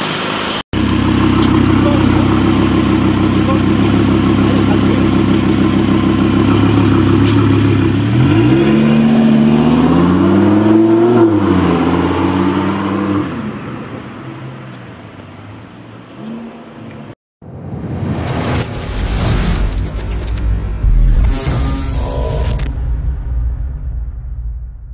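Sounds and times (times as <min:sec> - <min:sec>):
sports car engine revving: 0:00.8 - 0:13.5, 0:18.6 - 0:22.7.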